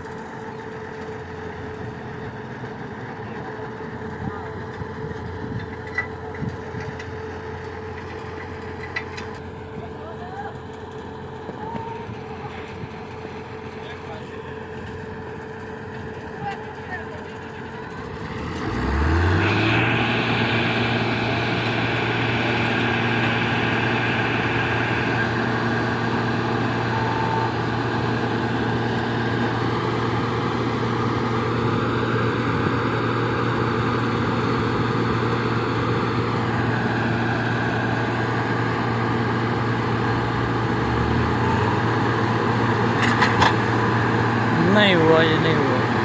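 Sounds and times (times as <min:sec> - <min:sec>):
second lower engine note: 0:16.4 - 0:31.5
diesel engine revving hard: 0:17.4 - 0:46.0.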